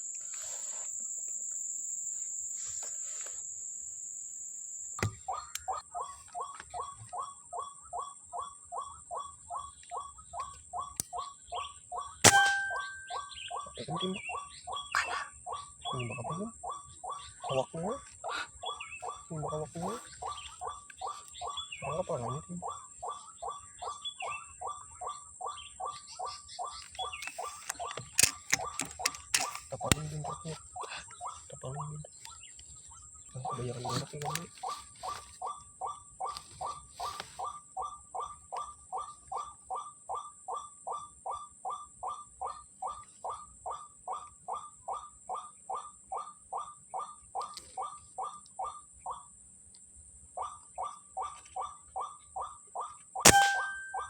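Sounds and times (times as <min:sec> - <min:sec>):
high insect whine: 0:00.0 - 0:05.7
waterhen calls: 0:05.2 - 0:32.1, 0:52.8 - 0:54.0
click: 0:09.8 - 0:11.2, 0:26.8 - 0:30.1, 0:34.0 - 0:34.5, 0:47.4 - 0:47.7
sharp cracks: 0:12.2 - 0:13.1, 0:53.3 - 0:54.0.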